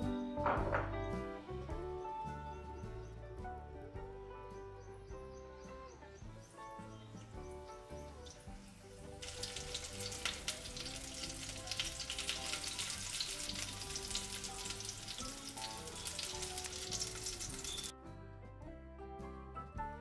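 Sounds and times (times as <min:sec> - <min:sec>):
soft background music: 0:00.0 - 0:20.0
chicken frying in hot oil: 0:06.5 - 0:17.9.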